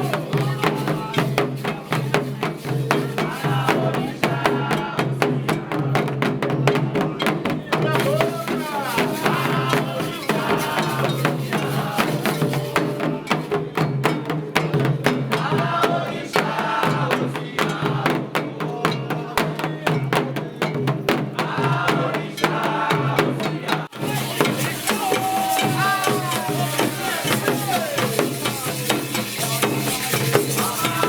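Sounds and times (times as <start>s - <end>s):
drums: 0.0s - 31.0s
voices singing together: 0.0s - 31.0s
struck bell: 7.9s - 15.2s, 24.0s - 31.0s.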